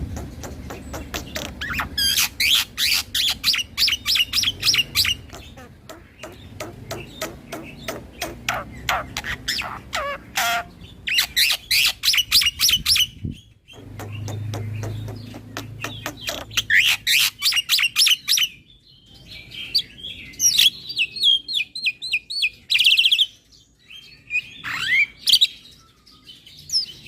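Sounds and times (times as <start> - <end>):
bird warbling and clicking: 0.1 - 2.4, 4.8 - 10.6, 13.8 - 17.0.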